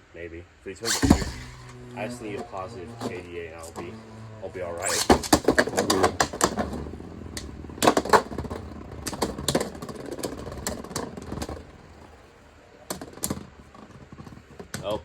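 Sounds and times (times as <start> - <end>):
spinning tops clacking: 0.8 - 12.2
spinning tops whirring: 0.8 - 14.8.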